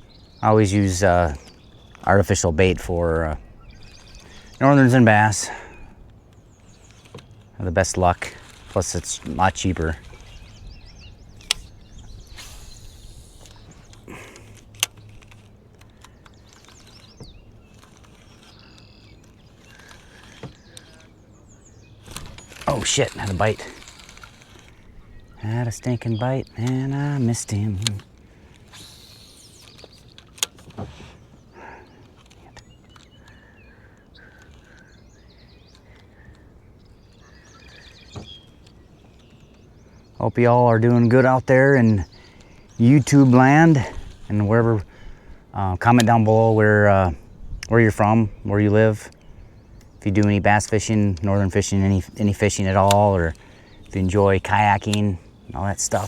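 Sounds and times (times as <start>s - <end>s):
faint bird chirps: 0.0s - 56.0s
light steady hiss: 0.0s - 56.0s
sharp clicks: 0.0s - 56.0s.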